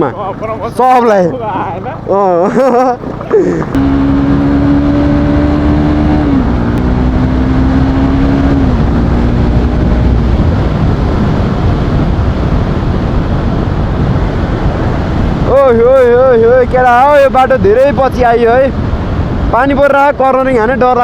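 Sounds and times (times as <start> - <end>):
motorcycle engine running: 0.0 - 16.3
road rumble: 0.0 - 21.0
wind on microphone: 3.0 - 19.8.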